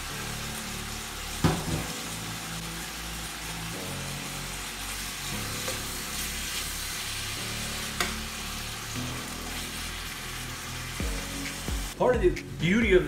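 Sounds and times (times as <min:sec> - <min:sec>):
liver sizzling in a skillet: 0:00.0 - 0:12.0.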